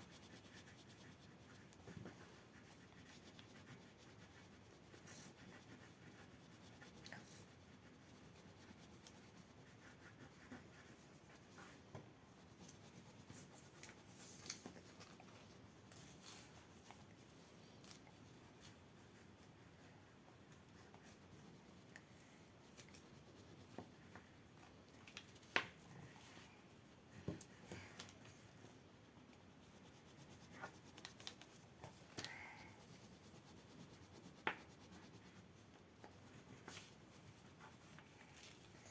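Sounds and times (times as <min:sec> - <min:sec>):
drawing strokes on paper: 0:00.0 - 0:27.6, 0:28.3 - 0:38.9.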